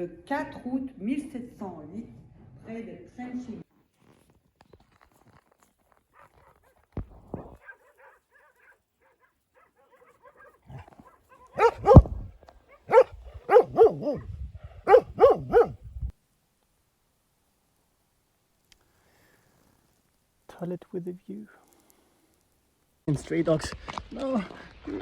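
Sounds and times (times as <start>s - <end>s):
dog barking: 6.1s - 6.8s, 7.4s - 15.8s.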